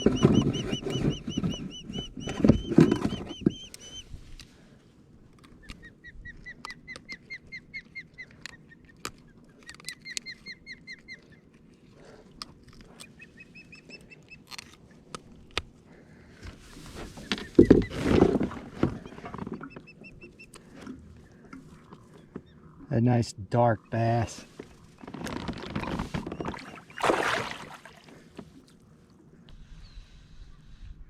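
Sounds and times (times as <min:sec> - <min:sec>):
rustling or splashing noise: 0:24.4 - 0:28.8.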